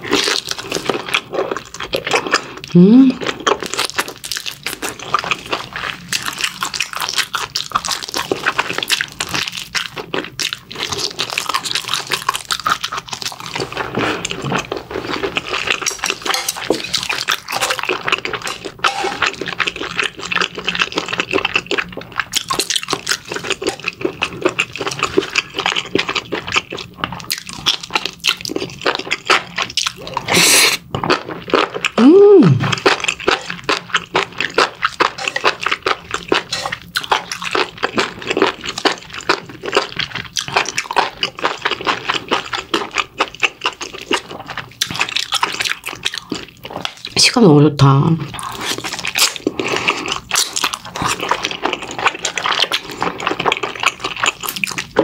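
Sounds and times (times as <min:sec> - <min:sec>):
wet chewing and smacking: 0:00.0 - 0:47.2, 0:48.2 - 0:55.0.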